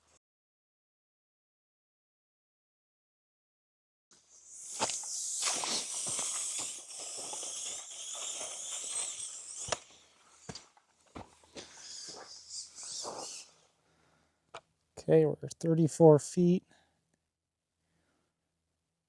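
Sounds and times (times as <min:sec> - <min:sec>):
footsteps crunching dry vegetation: 0:10.3 - 0:12.4.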